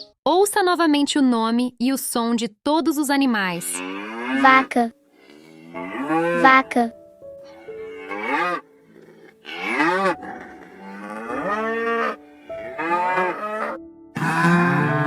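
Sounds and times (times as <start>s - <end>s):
cow mooing: 3.5s - 6.8s, 7.5s - 15.0s.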